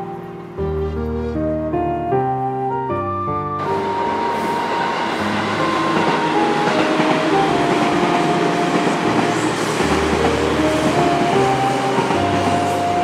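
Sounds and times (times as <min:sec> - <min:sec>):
light background music: 0:00.0 - 0:13.0
train wheels rumbling on rails: 0:03.6 - 0:13.0.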